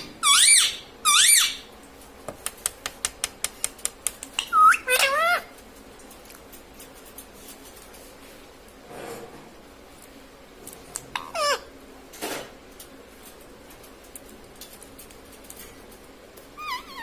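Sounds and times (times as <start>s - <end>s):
parakeet call: 0.2s - 1.7s.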